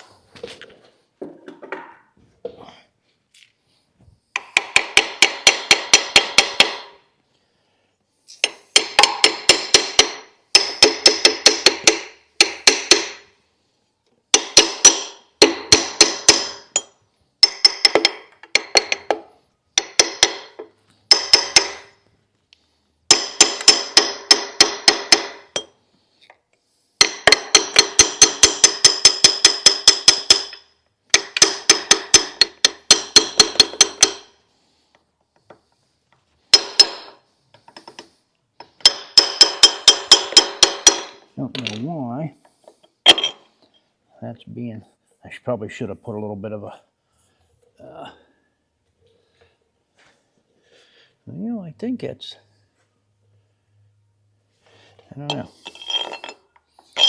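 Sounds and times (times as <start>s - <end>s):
small hammer tapping on metal: 8.4s - 13.2s, 14.3s - 22.0s.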